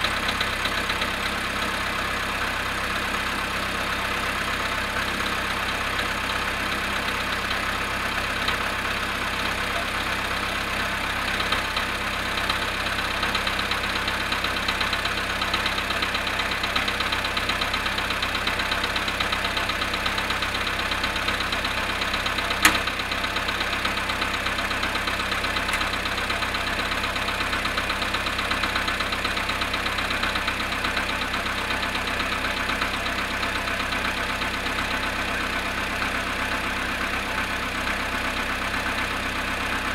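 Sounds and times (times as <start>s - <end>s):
car engine idling with knocking: 0.0s - 39.9s
sharp click: 22.6s - 22.9s.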